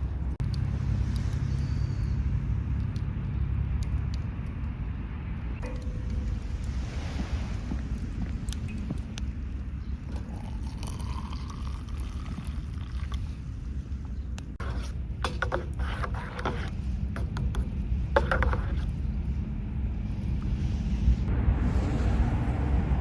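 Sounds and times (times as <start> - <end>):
wind rumbling on microphone: 0.0 - 15.2, 16.6 - 23.0.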